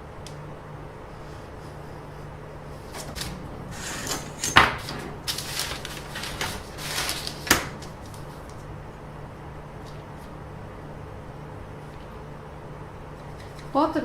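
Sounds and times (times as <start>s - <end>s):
rustling and scraping: 2.7s - 8.8s.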